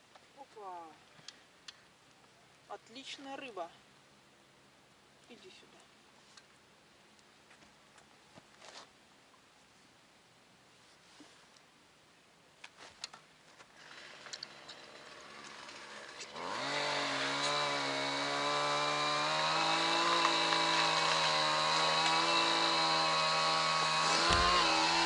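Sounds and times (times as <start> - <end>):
faint clicks and rustles: 12.6 - 16.3
small petrol engine running: 13.8 - 25.0.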